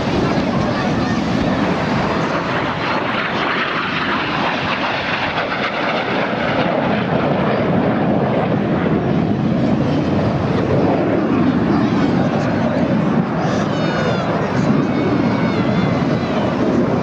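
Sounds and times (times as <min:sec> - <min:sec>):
jets flying overhead: 0:00.0 - 0:17.0.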